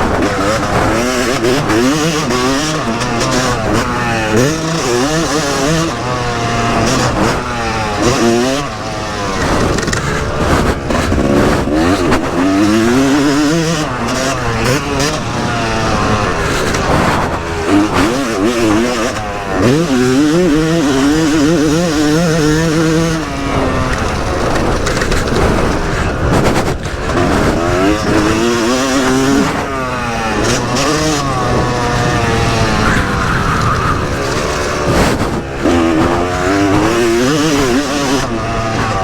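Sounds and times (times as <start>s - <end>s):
motocross engine revving: 0.0s - 39.0s
rushing noise: 30.0s - 37.0s.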